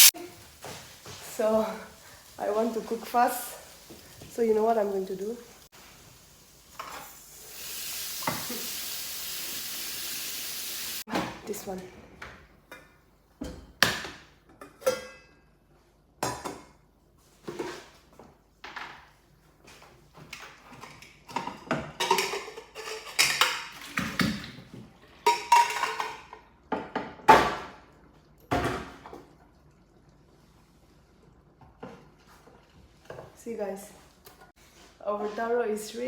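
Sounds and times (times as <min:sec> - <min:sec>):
metal cookware clattering: 0:20.8 - 0:24.3, 0:25.2 - 0:27.2.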